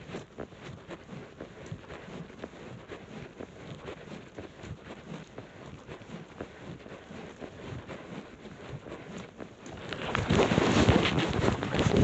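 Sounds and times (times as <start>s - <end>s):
footsteps: 7.7s - 12.0s.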